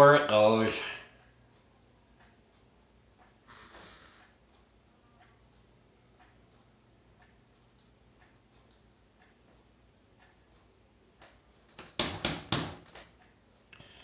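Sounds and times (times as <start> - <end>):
faint light ticking: 1.1 - 3.5, 4.1 - 11.6
sharp knocks on plastic case: 11.8 - 12.9.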